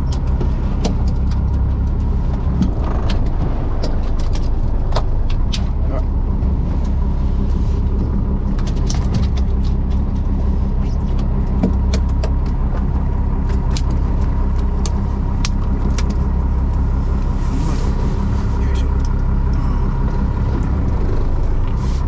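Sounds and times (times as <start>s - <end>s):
sharp clicks and knocks: 0.0s - 5.8s, 8.0s - 16.2s
boat engine droning: 0.0s - 22.0s.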